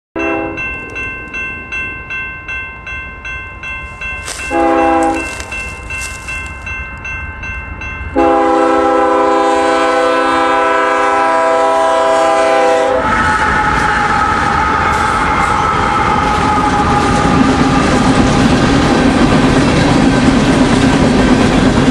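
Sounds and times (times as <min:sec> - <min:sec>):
locomotive horn blasts: 0:00.2 - 0:00.6, 0:04.5 - 0:05.5, 0:08.2 - 0:18.0
crossing bell ringing: 0:00.2 - 0:21.7
train rumbling past: 0:00.2 - 0:21.9.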